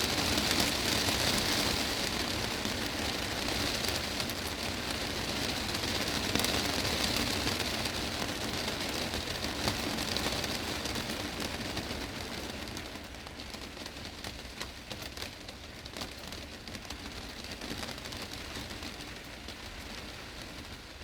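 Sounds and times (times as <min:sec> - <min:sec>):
heavy rain on glass roof: 0:00.0 - 0:21.0.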